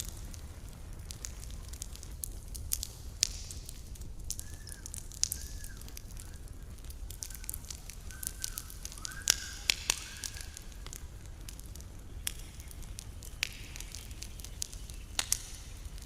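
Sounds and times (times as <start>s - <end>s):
campfire crackling and popping: 0.0s - 16.0s
faint short whistles: 4.4s - 6.6s, 8.0s - 10.4s.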